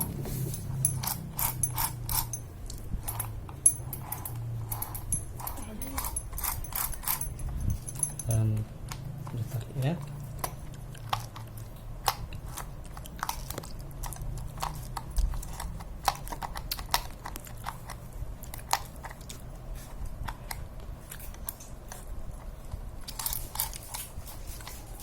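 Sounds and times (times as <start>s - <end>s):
low steady hum: 0.0s - 25.0s
metal parts clicking and tapping: 0.5s - 9.4s.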